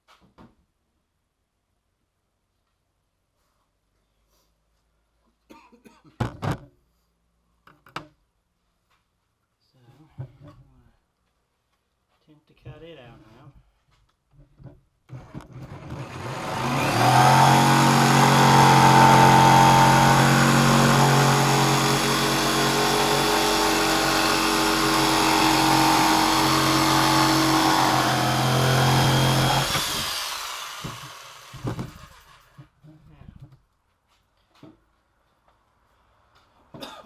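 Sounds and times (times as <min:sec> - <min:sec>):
power tool cutting plastic: 0:15.1 - 0:32.6.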